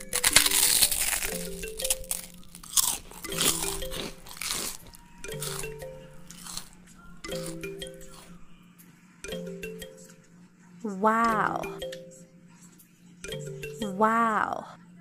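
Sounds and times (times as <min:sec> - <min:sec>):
person crunching raw vegetables: 0:00.0 - 0:08.3
light melodic background music: 0:00.0 - 0:15.0.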